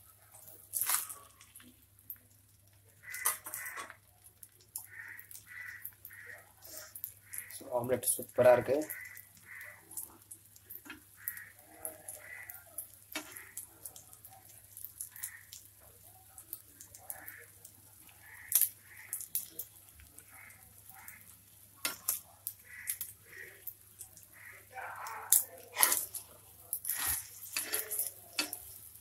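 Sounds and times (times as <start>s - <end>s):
omelette sizzling in oil: 0.0s - 29.0s
spatula clicking against pan: 10.0s - 14.0s, 21.8s - 24.3s, 26.8s - 28.8s.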